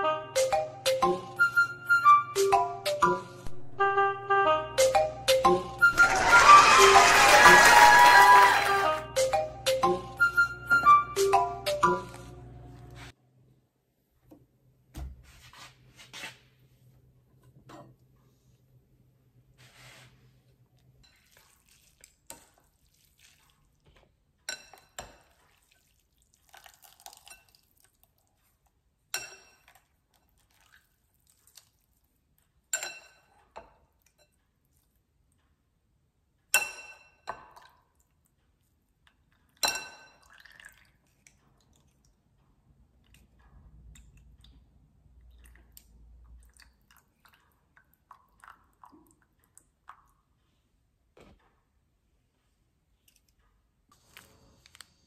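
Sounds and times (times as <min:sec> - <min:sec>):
soft drips: 0:20.7 - 0:24.1, 0:24.7 - 0:32.5, 0:37.5 - 0:50.6.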